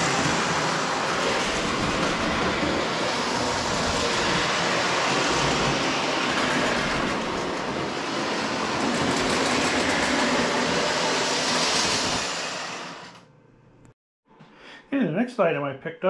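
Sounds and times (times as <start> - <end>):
model train motor and wheels rumbling: 0.0 - 13.2.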